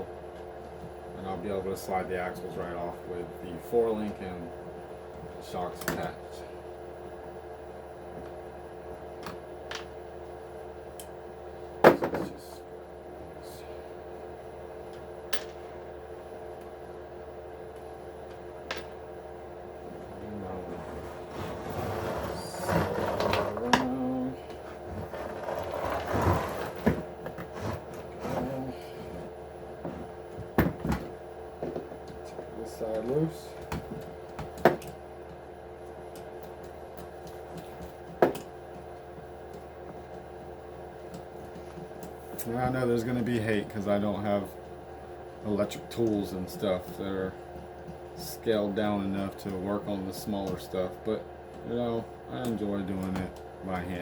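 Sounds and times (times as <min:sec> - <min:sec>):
steady low hum: 0:00.0 - 0:54.0
scraping noise: 0:20.7 - 0:23.6, 0:24.7 - 0:28.7.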